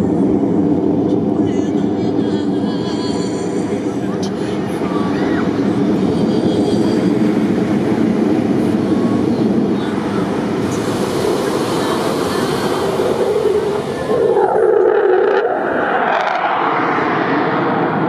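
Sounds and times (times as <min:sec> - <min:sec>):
aircraft engine roar: 0:00.0 - 0:18.0.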